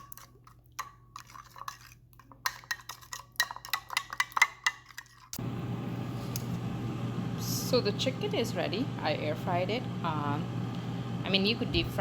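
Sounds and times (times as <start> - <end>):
steady hum: 5.4 - 12.0.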